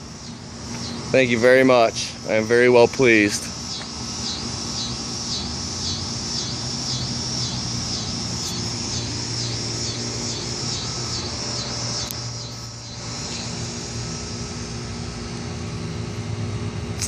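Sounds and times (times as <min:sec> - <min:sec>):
steady low hum: 0:00.0 - 0:17.0
bird calling high-pitched: 0:03.7 - 0:13.6.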